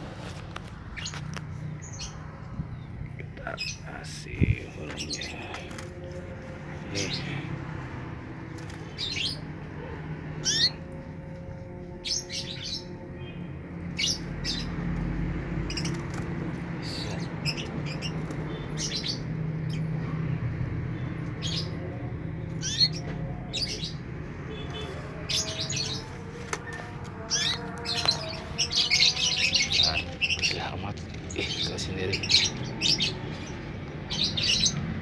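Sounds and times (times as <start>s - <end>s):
canary chirping: 10.4s - 11.0s, 21.3s - 35.0s.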